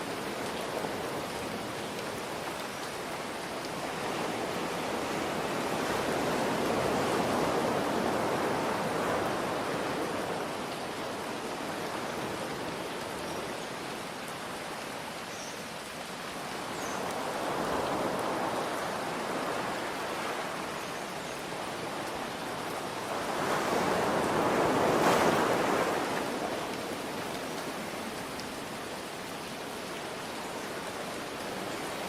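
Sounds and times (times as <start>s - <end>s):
rain hiss: 0.0s - 32.0s
ocean waves breaking: 22.4s - 28.2s.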